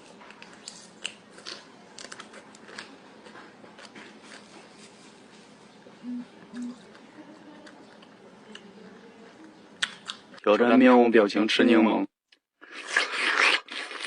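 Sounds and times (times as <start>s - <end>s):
person chewing lemon: 0.3s - 4.8s, 9.8s - 10.4s, 12.6s - 14.0s.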